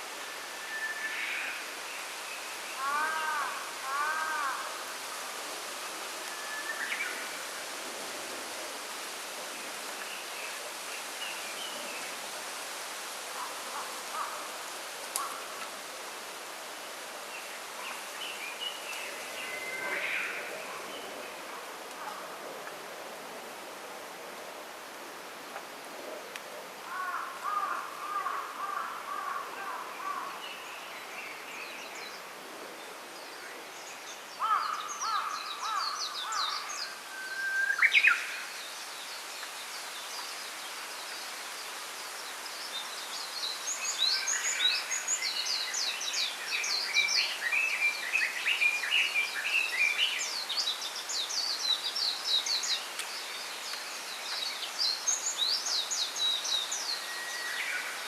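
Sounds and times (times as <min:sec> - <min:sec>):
steady background hiss: 0:00.0 - 0:58.0
small birds singing: 0:33.2 - 0:58.0.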